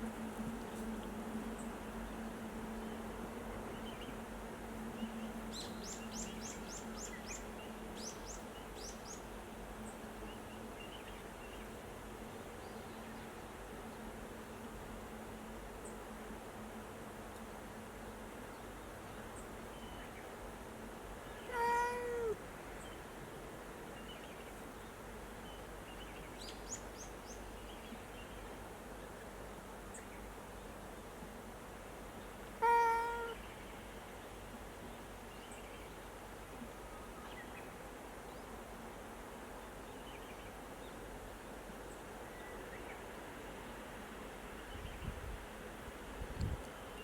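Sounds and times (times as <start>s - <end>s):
background hiss: 0.0s - 47.0s
cat meowing: 21.5s - 22.4s, 32.6s - 33.4s.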